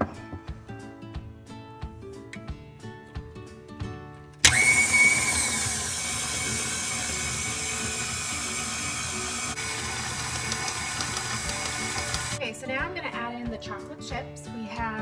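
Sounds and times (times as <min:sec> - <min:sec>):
light background music: 0:00.0 - 0:07.5, 0:09.3 - 0:15.0
electric mixer whining: 0:04.4 - 0:12.4.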